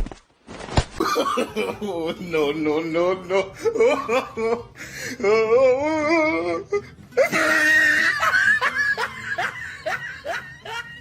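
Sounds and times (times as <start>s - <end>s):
person laughing hard: 3.3s - 11.0s.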